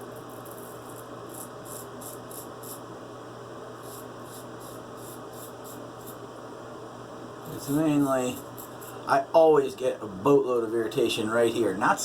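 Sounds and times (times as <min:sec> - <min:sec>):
razor scraping stubble: 0:00.3 - 0:02.8, 0:03.8 - 0:06.2.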